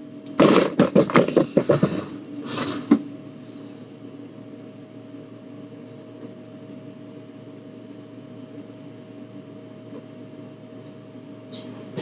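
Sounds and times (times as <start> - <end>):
bottles and jars rattling: 0.3 - 2.0.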